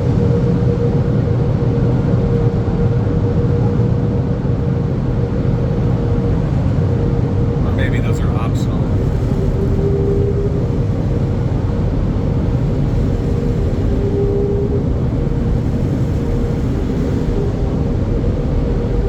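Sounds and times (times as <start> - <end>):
car wash machinery humming: 4.6 - 19.0.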